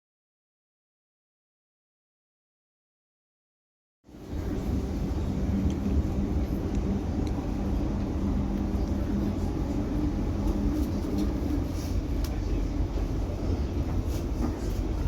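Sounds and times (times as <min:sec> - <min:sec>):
train interior rumble and hum: 0:04.1 - 0:15.0.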